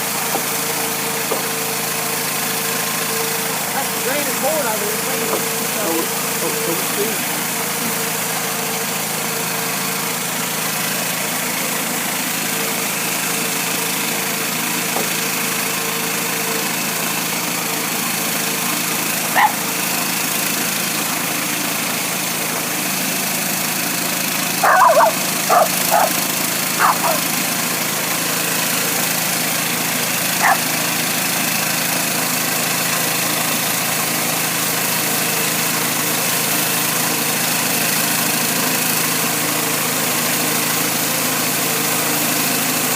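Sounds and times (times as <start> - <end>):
sawmill engine running: 0.0 - 42.9
dog barking: 19.3 - 19.7, 24.6 - 26.2, 26.8 - 27.3, 30.4 - 30.7.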